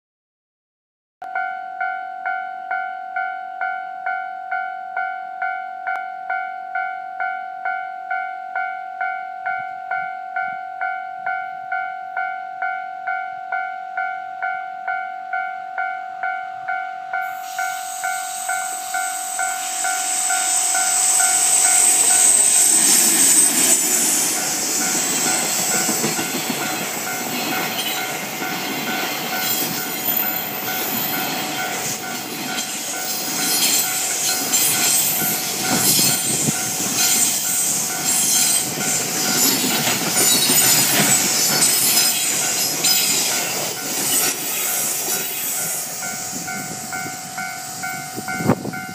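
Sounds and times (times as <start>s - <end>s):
level crossing alarm ringing: 1.3s - 48.9s
freight train passing: 14.4s - 48.9s
wagons rumbling on rails: 17.4s - 48.9s.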